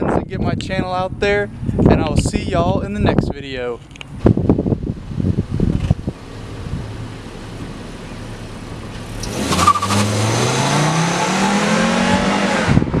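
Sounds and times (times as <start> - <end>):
car engine accelerating: 5.0 - 13.0.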